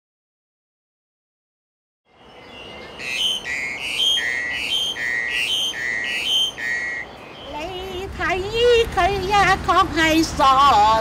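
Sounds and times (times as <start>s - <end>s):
bird whistling two-note call: 3.0s - 7.1s.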